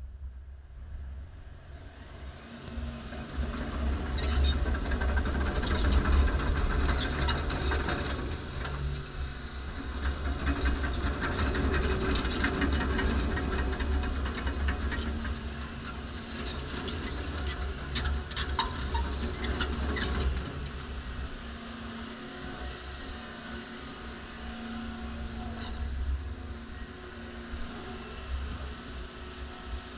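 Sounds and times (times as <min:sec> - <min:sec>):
excavator diesel engine drone: 0:00.0 - 0:29.9
steel tracks rattling and clanking: 0:02.7 - 0:23.8.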